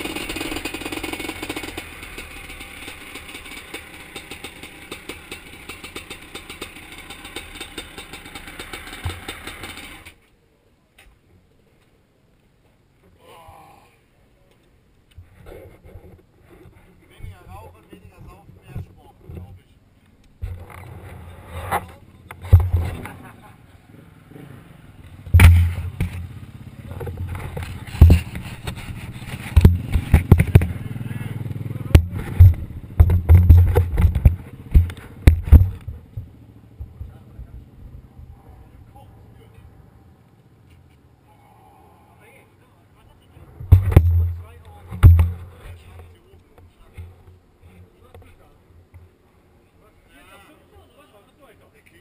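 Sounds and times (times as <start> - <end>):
two-stroke engine idling unevenly: 0.0 - 10.2, 24.8 - 37.8
heavy thumps: 21.6 - 23.1, 25.2 - 26.3, 26.9 - 30.9, 31.9 - 37.2, 43.6 - 46.0
thump: 25.3 - 26.2, 43.6 - 44.4, 45.0 - 45.4.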